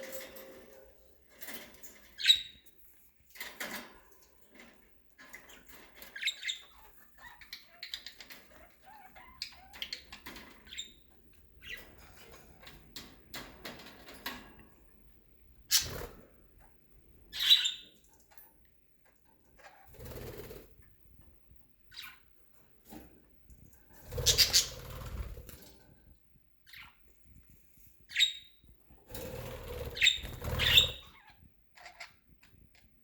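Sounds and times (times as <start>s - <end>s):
wing flapping: 24.0s - 25.6s, 29.1s - 31.0s
budgerigars chirping: 24.2s - 24.8s, 29.9s - 31.3s.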